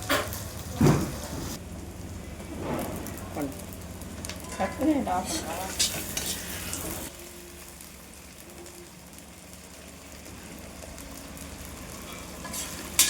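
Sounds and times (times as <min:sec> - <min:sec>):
food sizzling in a pan: 0:00.0 - 0:13.0
clinks and scrapes of stirring: 0:04.4 - 0:06.9, 0:12.0 - 0:13.0.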